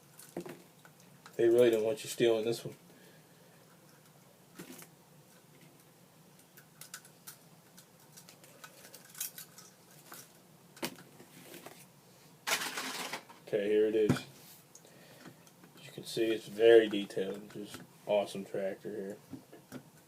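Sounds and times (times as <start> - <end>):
plastic toy clicks and rattles: 6.5 - 9.8, 12.5 - 13.3
packaging handling noise: 8.1 - 13.4.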